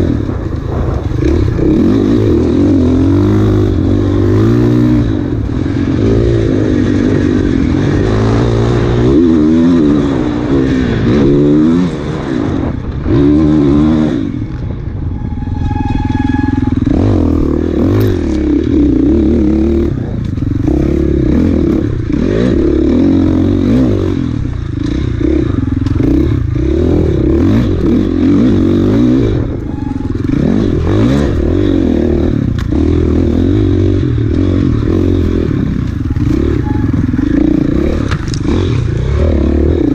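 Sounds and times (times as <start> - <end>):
dirt bike engine revving: 0.0 - 39.9
bike clatter and scraping: 19.9 - 39.9.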